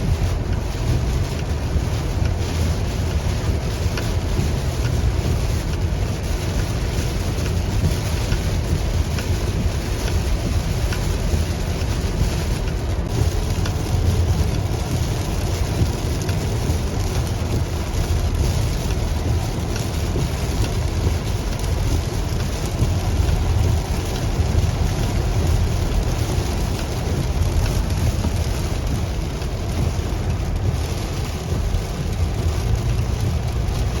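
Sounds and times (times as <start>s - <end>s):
heavy rain on car: 0.0s - 34.0s
road and engine rumble: 0.0s - 34.0s.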